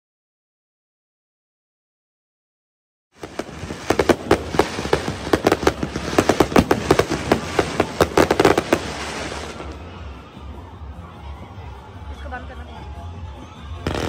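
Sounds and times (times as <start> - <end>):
fireworks bangs and crackles: 3.2 - 11.5, 13.6 - 14.0.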